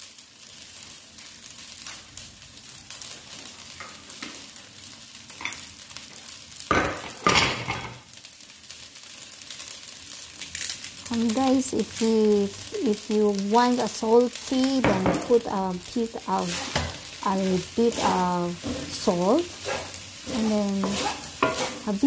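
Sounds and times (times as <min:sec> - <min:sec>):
rice sizzling in a wok: 0:00.0 - 0:22.0
wooden spatula scraping wok: 0:14.3 - 0:22.0.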